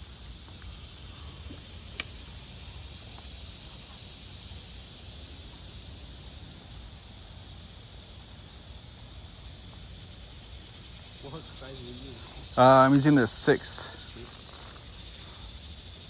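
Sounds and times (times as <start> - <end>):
insects droning: 0.0 - 16.0
sharp click: 0.6 - 2.3.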